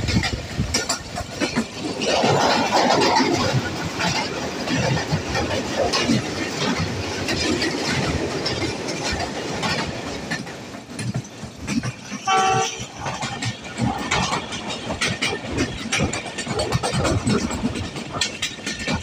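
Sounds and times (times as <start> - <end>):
train wheels clattering over rail joints: 0.0 - 19.0
train horn blast: 12.2 - 13.0.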